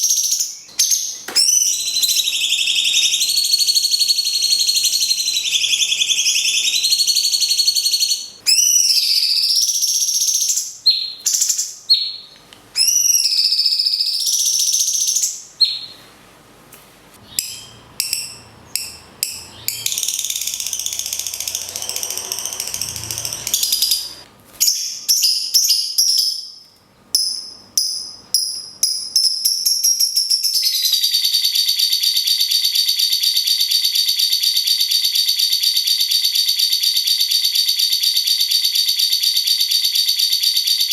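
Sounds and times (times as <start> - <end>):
fast rattling bird trill: 0.0 - 12.1, 12.8 - 15.4, 17.3 - 26.5
birds singing: 0.0 - 16.0, 17.2 - 26.6.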